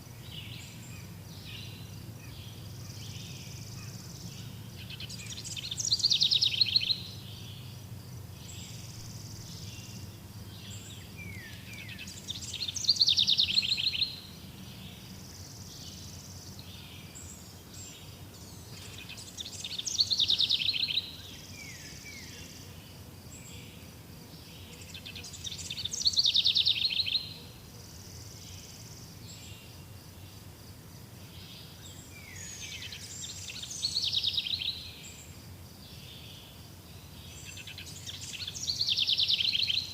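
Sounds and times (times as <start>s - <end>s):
forest ambience: 0.0s - 39.9s
songbird trill: 0.0s - 39.9s.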